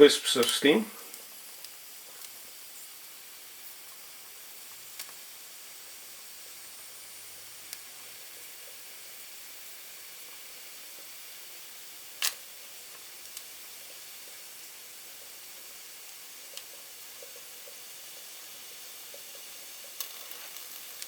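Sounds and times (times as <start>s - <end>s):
steam locomotive hissing: 0.0s - 2.0s.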